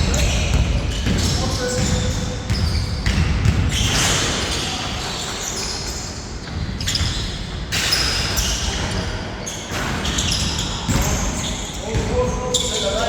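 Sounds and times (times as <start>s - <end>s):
basketball bouncing on a court: 0.0s - 4.2s, 10.0s - 12.4s.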